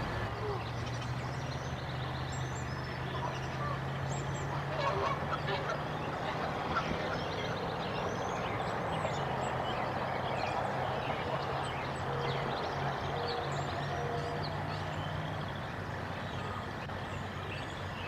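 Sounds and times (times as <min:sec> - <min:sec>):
small birds chirping: 0:00.0 - 0:18.0
geese honking: 0:03.0 - 0:15.0.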